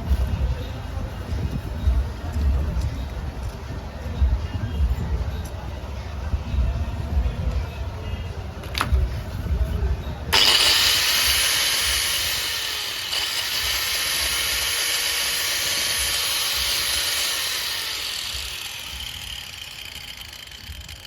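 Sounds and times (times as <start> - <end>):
angle grinder whining: 10.4 - 21.0.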